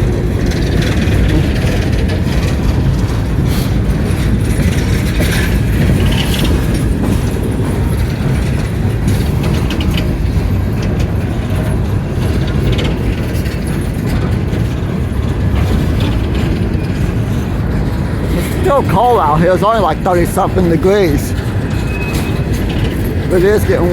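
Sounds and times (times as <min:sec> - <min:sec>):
train clicks and clanks: 0:00.0 - 0:23.9
train wheels rumbling on rail: 0:00.0 - 0:23.9.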